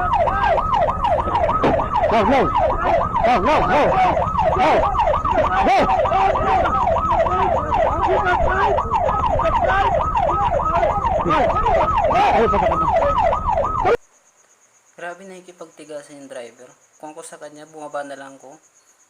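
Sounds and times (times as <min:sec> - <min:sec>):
motorcycle siren yelping: 0:00.0 - 0:14.0.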